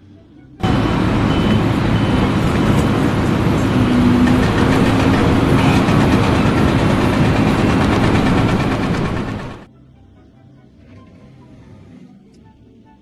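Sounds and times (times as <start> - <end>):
heavy machinery engine running: 0.6 - 9.7.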